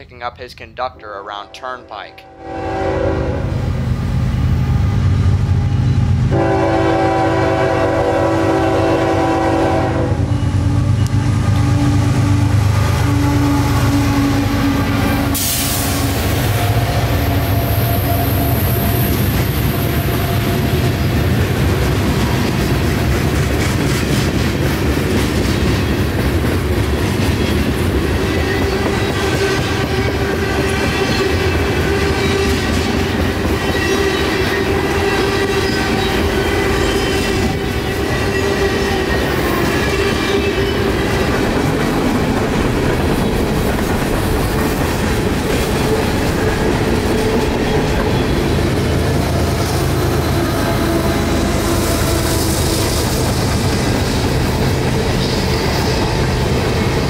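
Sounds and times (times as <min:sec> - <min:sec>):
diesel locomotive engines rumbling: 0:00.0 - 0:57.0
train horn chord: 0:01.0 - 0:03.6, 0:06.3 - 0:17.0, 0:49.6 - 0:53.3.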